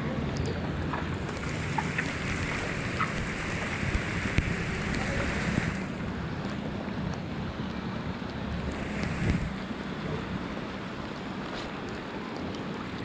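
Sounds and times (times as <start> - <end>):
floodwater rushing and splashing: 0.0 - 13.0
faint ticks: 7.7 - 9.6.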